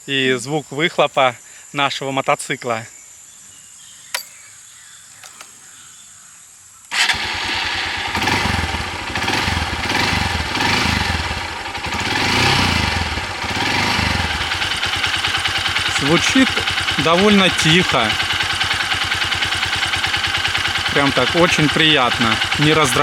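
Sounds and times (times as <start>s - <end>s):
motorcycle engine starting and running: 4.2s - 4.4s, 5.2s - 5.8s, 6.9s - 23.0s
single click: 4.2s - 4.4s.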